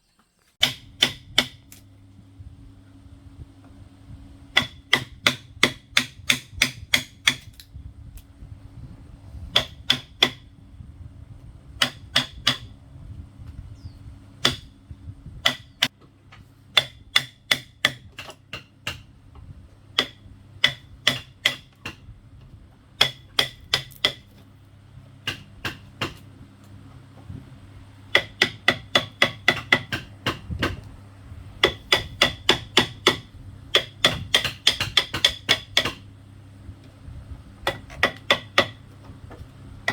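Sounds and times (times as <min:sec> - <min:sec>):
faint steady hum: 0:00.0 - 0:39.9
hammer driving nails: 0:00.6 - 0:01.7, 0:04.5 - 0:07.6, 0:09.5 - 0:10.5, 0:11.8 - 0:12.7, 0:16.7 - 0:19.1, 0:20.0 - 0:22.0, 0:23.0 - 0:24.3, 0:25.2 - 0:26.2, 0:28.1 - 0:30.8, 0:31.6 - 0:36.0, 0:37.6 - 0:38.8.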